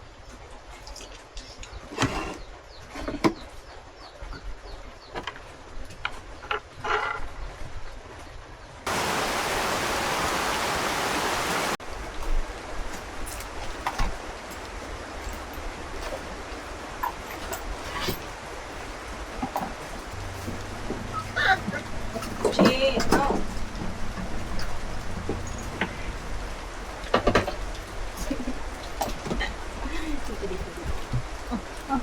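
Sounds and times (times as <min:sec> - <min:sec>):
rushing water: 0:08.8 - 0:32.0.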